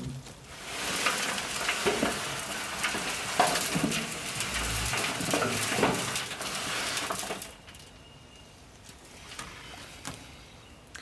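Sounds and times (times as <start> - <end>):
drum creaking: 0.0 - 7.6
compost contents tumbling: 0.0 - 10.3.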